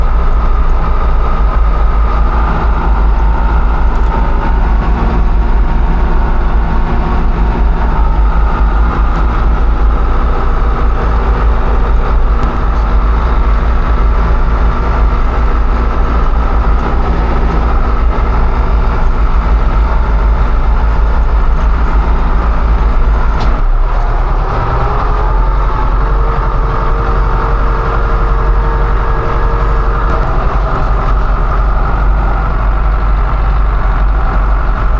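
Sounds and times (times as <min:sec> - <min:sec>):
farm machinery engine running: 0:00.0 - 0:34.9.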